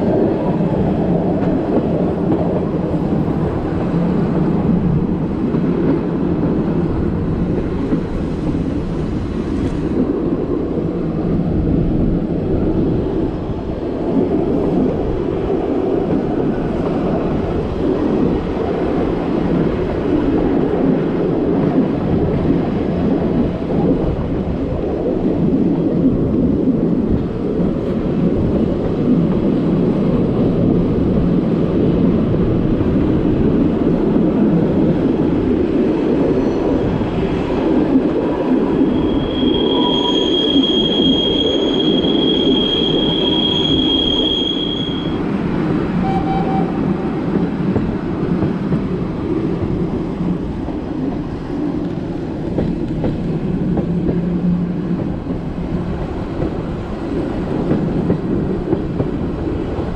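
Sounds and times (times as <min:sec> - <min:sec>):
train wheels rumbling on rail: 0:00.0 - 0:59.9
high-pitched wheel squeal: 0:38.9 - 0:45.2, 0:46.0 - 0:46.9.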